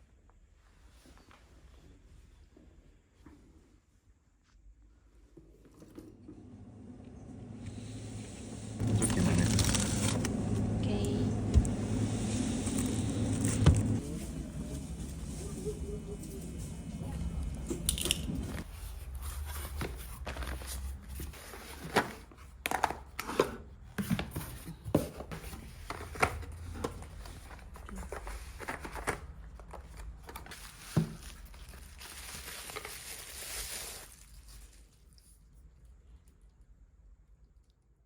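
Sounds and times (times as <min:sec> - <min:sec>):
rustling and crinkling: 0:12.1 - 0:23.2, 0:24.0 - 0:36.4.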